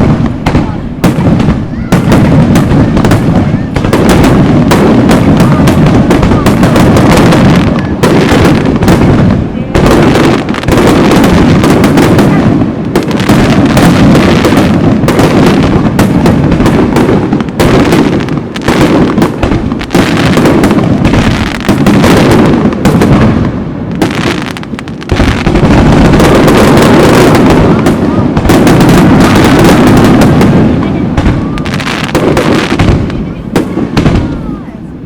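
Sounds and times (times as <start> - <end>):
aerial fireworks bursting: 0.0 - 35.0.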